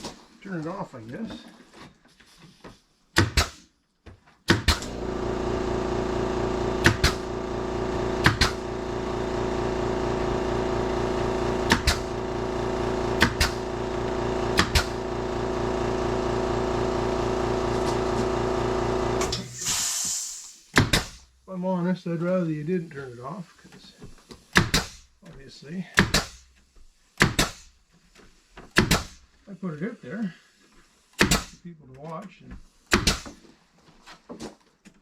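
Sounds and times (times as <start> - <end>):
machine humming: 4.8 - 19.7.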